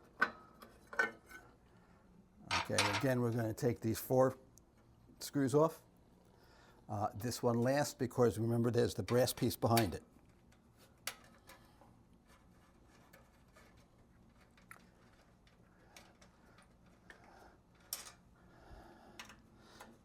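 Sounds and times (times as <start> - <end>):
metallic clicks of a tool on screws: 19.2 - 20.0.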